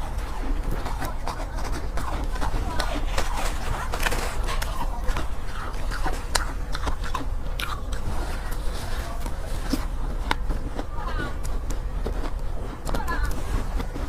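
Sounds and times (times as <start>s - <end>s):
ice being chewed: 0.0s - 14.0s.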